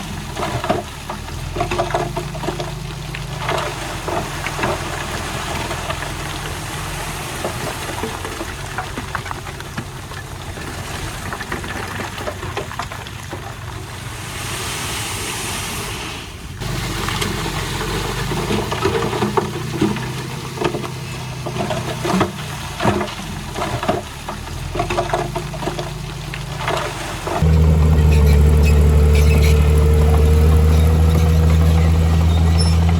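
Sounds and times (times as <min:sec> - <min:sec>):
heavy machinery diesel engine running: 0:16.6 - 0:32.9.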